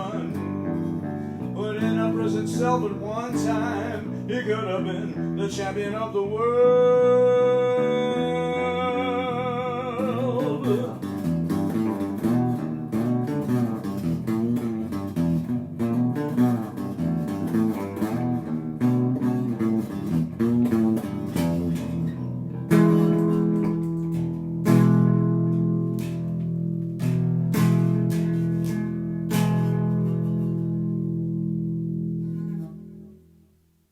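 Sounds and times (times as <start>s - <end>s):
guitar and bass music: 0.0s - 33.9s.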